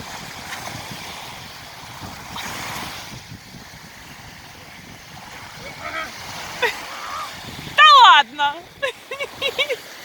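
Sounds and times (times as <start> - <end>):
sea waves washing ashore: 0.0 - 10.0
wind buffeting microphone: 0.0 - 10.0.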